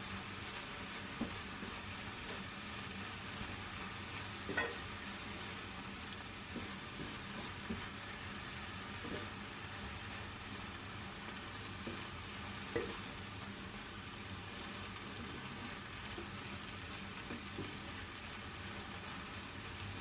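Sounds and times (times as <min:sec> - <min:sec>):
food sizzling in a frying pan: 0:00.0 - 0:20.0
utensil knocking against pan: 0:04.5 - 0:04.9, 0:12.7 - 0:13.0.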